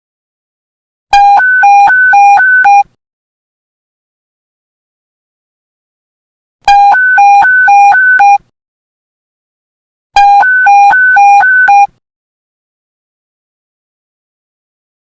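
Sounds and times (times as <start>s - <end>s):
electronic two-tone alert beep: 1.2s - 2.9s, 6.7s - 8.4s, 10.2s - 11.9s.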